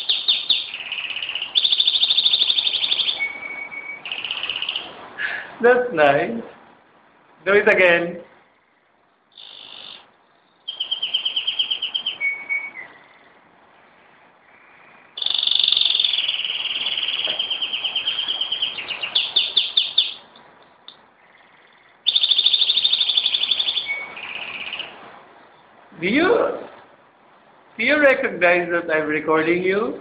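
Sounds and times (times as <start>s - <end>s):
canary singing trills: 0.0s - 5.0s, 8.3s - 25.8s.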